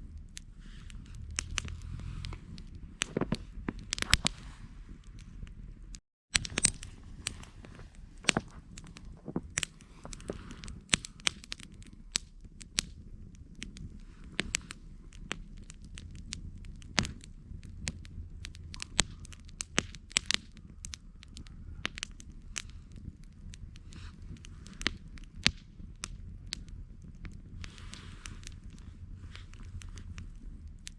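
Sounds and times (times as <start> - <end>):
campfire wood crackling: 0.0 - 30.9
low rumble of flames: 0.0 - 30.9
sharp pops: 0.1 - 5.6, 6.3 - 30.9.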